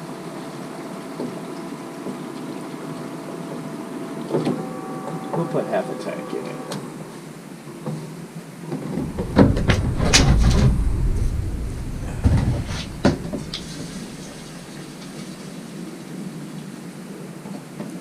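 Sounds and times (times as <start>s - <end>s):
low rumble: 8.9s - 15.4s.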